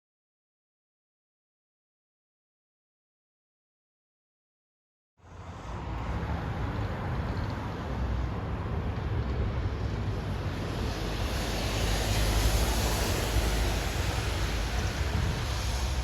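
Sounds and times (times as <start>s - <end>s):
bus engine hum: 5.2s - 16.0s
road noise: 5.2s - 16.0s.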